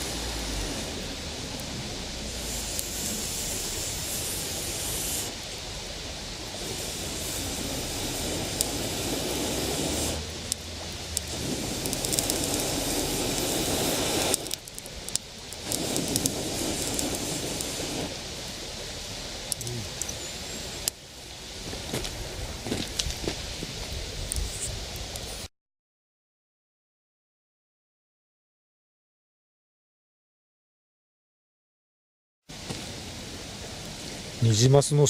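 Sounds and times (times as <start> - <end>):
campfire crackling: 0.0 - 25.5, 32.5 - 35.0
steady rushing noise: 0.0 - 25.5.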